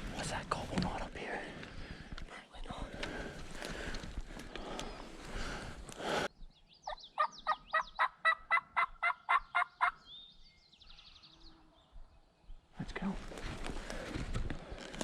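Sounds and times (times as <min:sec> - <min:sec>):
small birds chirping: 0:00.2 - 0:14.0
turkey yelps: 0:07.2 - 0:10.0
rustling: 0:13.2 - 0:15.0.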